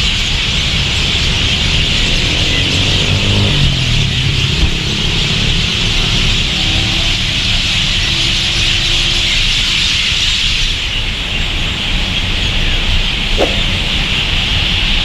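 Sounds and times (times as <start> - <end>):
swallows chattering: 12.2 - 14.6.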